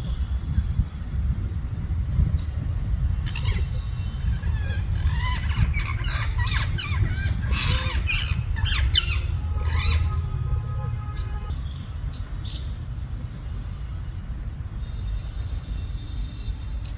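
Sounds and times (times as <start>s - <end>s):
steady low rumble: 0.0s - 14.8s
parrots squawking: 3.2s - 10.2s.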